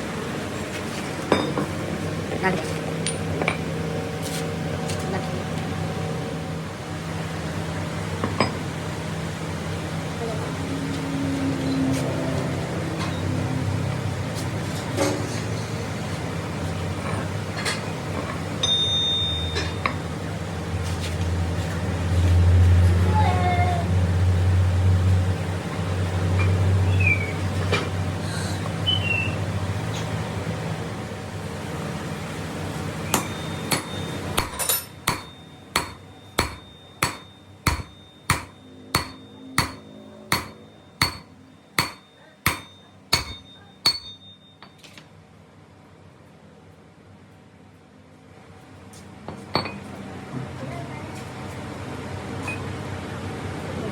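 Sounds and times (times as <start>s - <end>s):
workshop machine humming: 0.0s - 44.8s
hammer striking metal: 33.1s - 44.8s
struck metal ringing: 33.1s - 44.8s.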